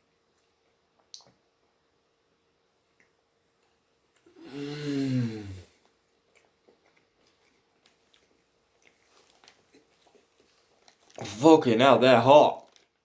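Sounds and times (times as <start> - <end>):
man's breathy groan: 4.4 - 5.7.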